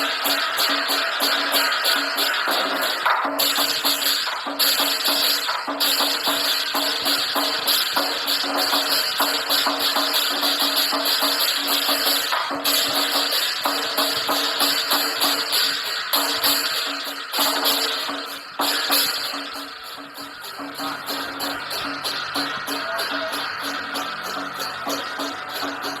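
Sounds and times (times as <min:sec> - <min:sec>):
cymbals clashing: 0:00.0 - 0:26.0
lion dance drum: 0:00.0 - 0:26.0.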